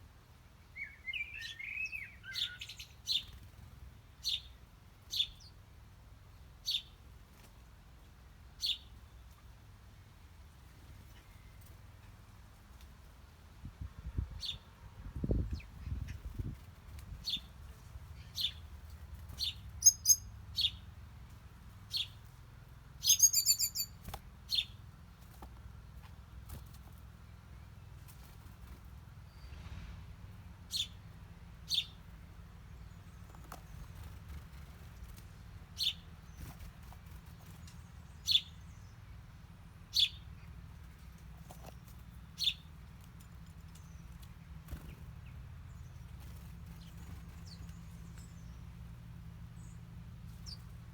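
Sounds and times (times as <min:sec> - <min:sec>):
small birds chirping: 0:00.6 - 0:05.6, 0:06.3 - 0:07.5, 0:08.6 - 0:09.5, 0:14.1 - 0:29.8, 0:30.6 - 0:50.9
bird rapid trill: 0:19.3 - 0:20.8, 0:23.0 - 0:24.7
faint low rumble: 0:23.9 - 0:50.9.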